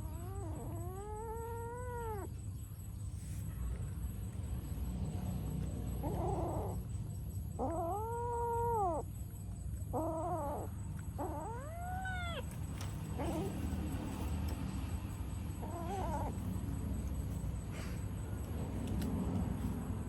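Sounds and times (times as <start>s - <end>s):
cat meowing: 9.9s - 12.6s, 13.2s - 14.1s, 15.5s - 16.6s.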